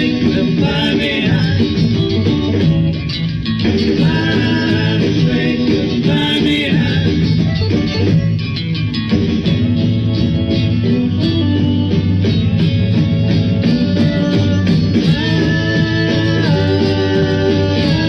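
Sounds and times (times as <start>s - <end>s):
person singing: 0.0s - 2.9s, 3.8s - 7.4s, 13.6s - 18.0s
band playing guitar and rhythm: 0.0s - 18.0s.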